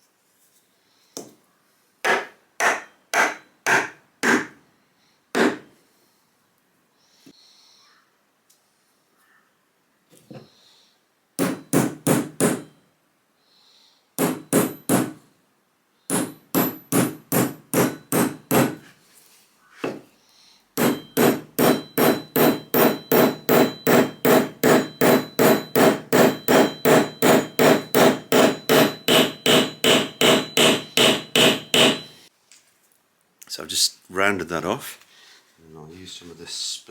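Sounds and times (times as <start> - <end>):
hammer striking metal: 2.1 - 4.6, 11.4 - 12.7, 14.2 - 15.2, 16.1 - 18.8, 20.8 - 32.3.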